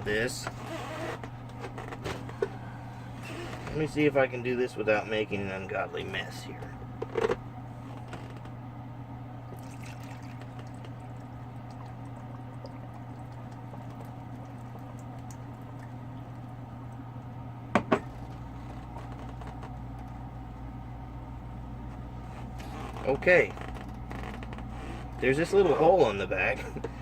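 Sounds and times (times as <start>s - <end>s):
water pouring into reservoir: 9.5s - 16.4s.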